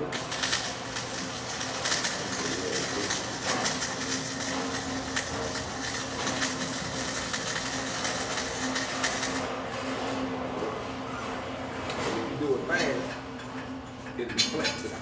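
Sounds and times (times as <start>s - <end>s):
arc welding crackle: 0.0s - 9.5s
welder hum: 0.0s - 9.6s.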